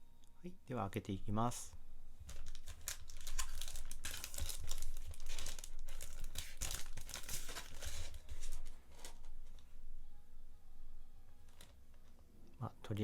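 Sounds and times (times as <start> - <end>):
packaging tearing and crinkling: 2.3 - 9.3.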